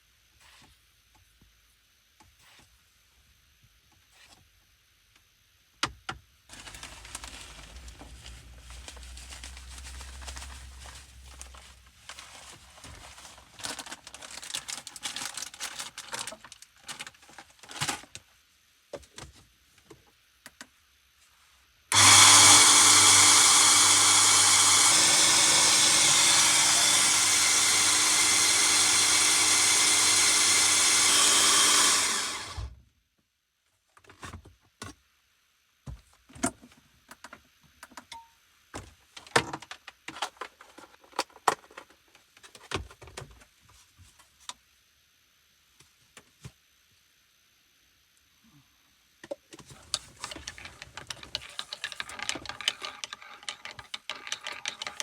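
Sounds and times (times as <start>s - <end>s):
small electric motor whirring: 21.9s - 32.7s
handling noises and clicks: 49.6s - 55.0s.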